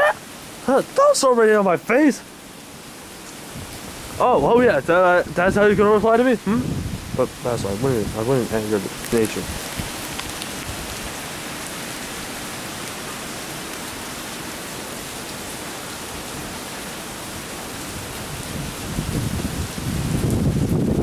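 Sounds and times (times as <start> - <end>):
falling rain hiss: 0.0 - 21.0
wind buffeting microphone: 3.5 - 11.2, 17.8 - 21.0.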